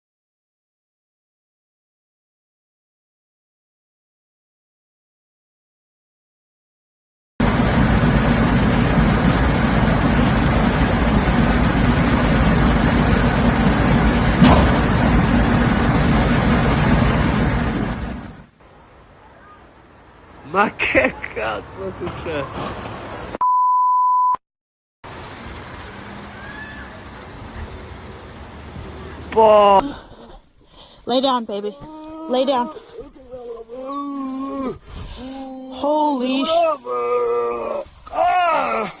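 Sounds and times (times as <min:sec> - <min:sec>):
loud steady rumbling: 0:07.4 - 0:19.1, 0:25.1 - 0:30.6
censor bleep: 0:23.4 - 0:24.4.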